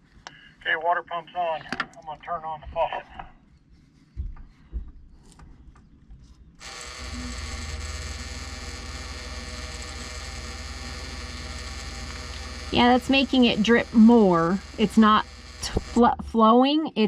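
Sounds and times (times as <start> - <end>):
water pump buzzing: 6.6 - 16.4.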